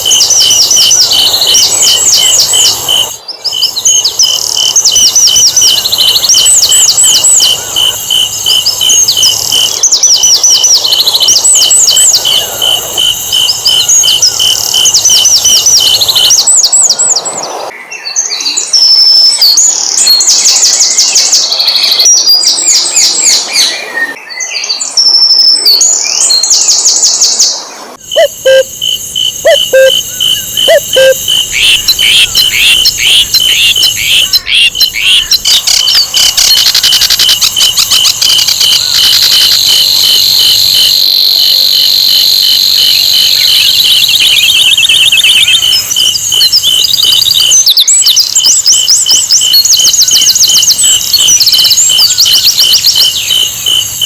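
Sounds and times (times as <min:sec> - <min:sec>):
bird chirps and trills: 0:00.0 - 0:17.2, 0:28.0 - 0:41.2, 0:42.5 - 0:54.0
repeated short bird note: 0:28.0 - 0:36.3.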